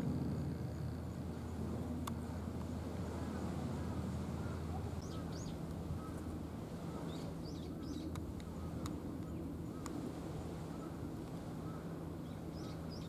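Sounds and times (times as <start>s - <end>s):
steady low hum: 0.0s - 13.0s
birds chirping: 4.4s - 10.0s, 10.7s - 13.0s.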